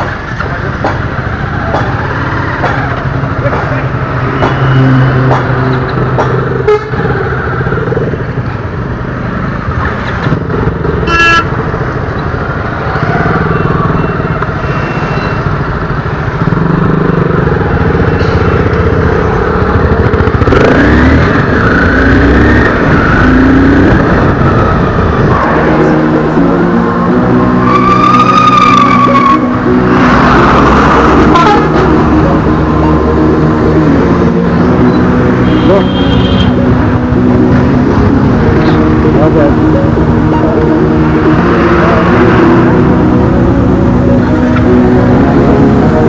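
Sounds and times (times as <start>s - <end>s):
horn honk: 6.6s - 7.1s, 11.0s - 11.6s, 30.6s - 32.2s, 34.9s - 37.1s
motorcycle engine running: 15.4s - 25.2s.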